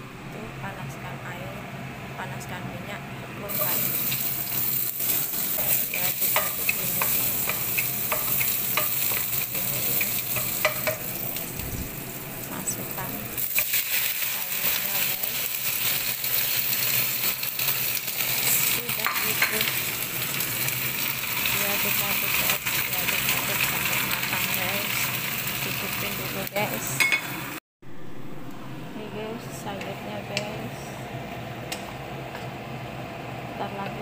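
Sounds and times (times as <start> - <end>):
hot oil sizzling: 3.5 - 27.6.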